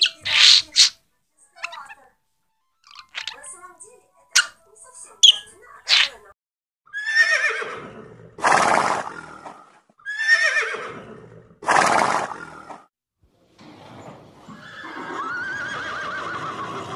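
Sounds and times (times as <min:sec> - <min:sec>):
horse neighing: 0:00.0 - 0:00.9, 0:06.9 - 0:08.0, 0:10.0 - 0:11.2, 0:14.6 - 0:16.9.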